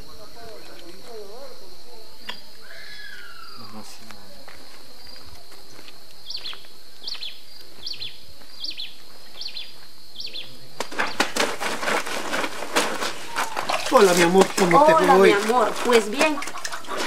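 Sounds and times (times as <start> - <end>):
high insect buzz: 0.0 - 16.9
bird chirping: 2.1 - 4.0, 5.1 - 11.3
clothes scrubbed and splashed by hand: 11.2 - 17.0.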